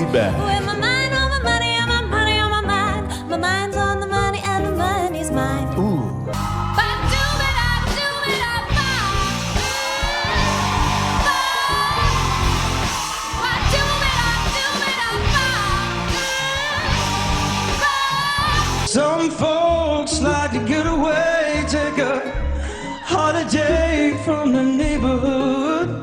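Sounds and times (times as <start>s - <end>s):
person singing pop song: 0.0s - 26.0s
steady bass line: 6.4s - 18.9s.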